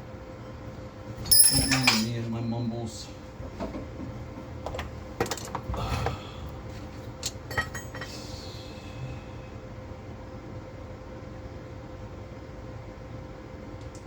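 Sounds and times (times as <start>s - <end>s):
faint steady hum: 0.0s - 14.0s
metal tools clinking: 1.3s - 2.2s.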